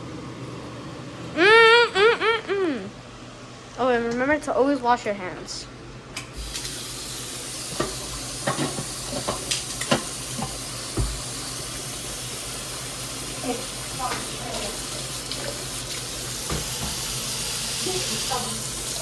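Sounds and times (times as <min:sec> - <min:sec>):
pot hissing on stove: 0:06.4 - 0:19.0
pots and utensils clinking: 0:07.6 - 0:11.3.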